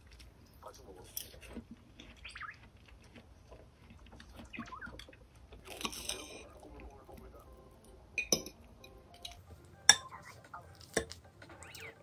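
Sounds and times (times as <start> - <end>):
faint bird chirps: 2.2 - 2.6, 4.4 - 5.2.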